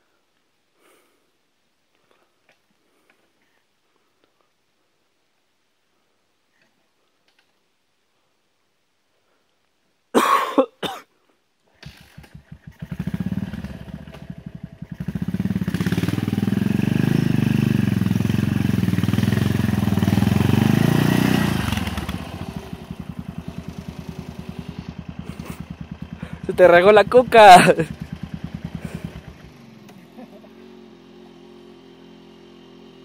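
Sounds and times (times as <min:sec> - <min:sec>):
motorcycle engine running: 0:11.8 - 0:33.0.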